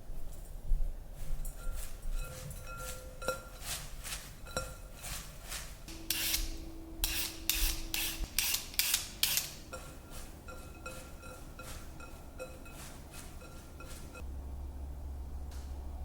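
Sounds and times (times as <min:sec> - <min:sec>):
rhythmic rasping hand rubbing: 0:05.0 - 0:14.2.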